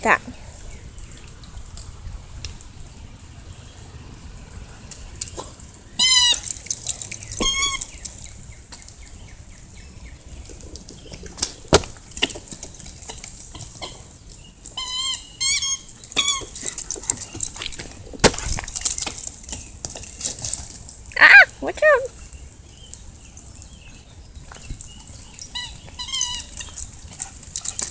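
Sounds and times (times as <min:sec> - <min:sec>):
rain pattering: 0:00.0 - 0:14.9, 0:15.7 - 0:27.9
dog whining: 0:07.4 - 0:07.9, 0:14.8 - 0:17.5, 0:25.1 - 0:26.8.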